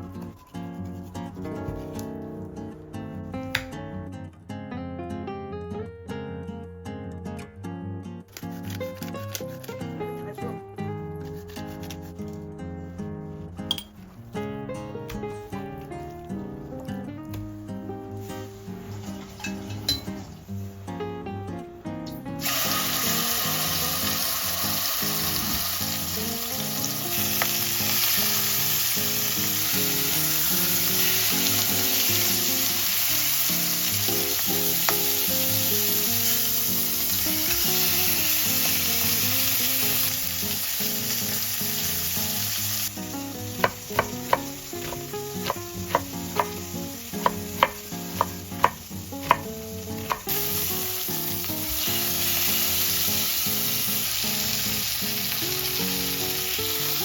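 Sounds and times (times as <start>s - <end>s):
food sizzling in a hot pan: 22.4s - 57.0s
utensil knocking against pan: 43.6s - 50.4s.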